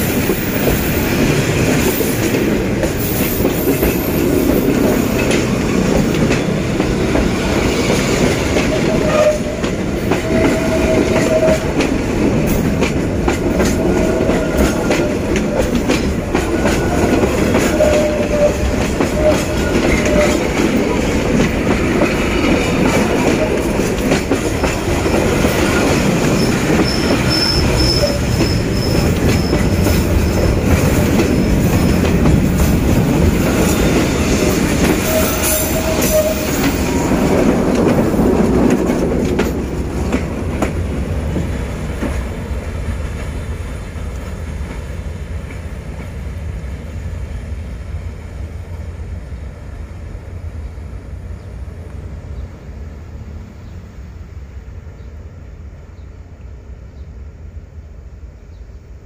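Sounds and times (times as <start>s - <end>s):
train wheels rumbling on rail: 0.0s - 59.0s
high wheel squeal: 17.6s - 20.6s, 25.6s - 32.2s, 33.4s - 37.1s.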